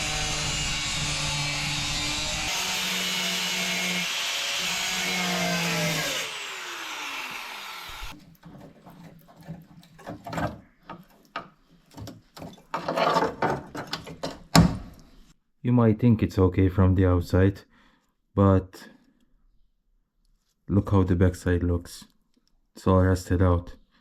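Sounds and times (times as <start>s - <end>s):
power tool cutting sheet metal: 0.0s - 8.2s
handling clicks and knocks: 8.2s - 15.1s.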